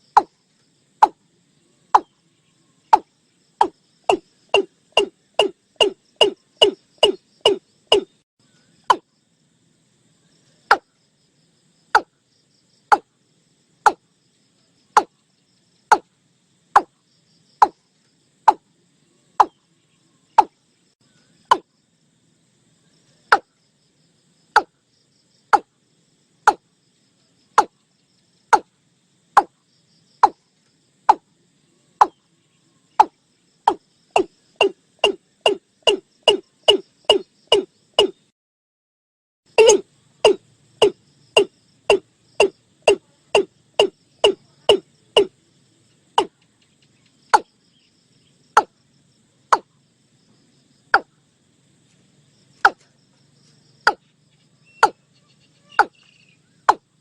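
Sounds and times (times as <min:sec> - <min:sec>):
bird calling short notes: 0:39.6 - 0:41.0.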